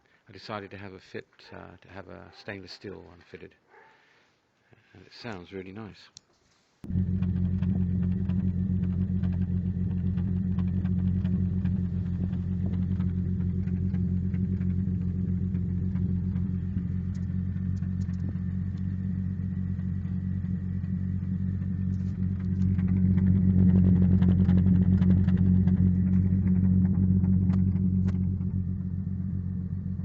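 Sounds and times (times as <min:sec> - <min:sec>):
car exhaust rumble: 0:06.8 - 0:30.0.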